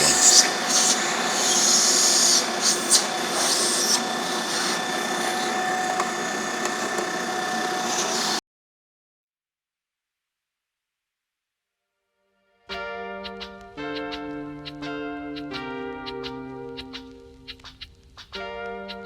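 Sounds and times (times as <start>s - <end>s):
electric coffee grinder grinding: 0.0s - 8.4s.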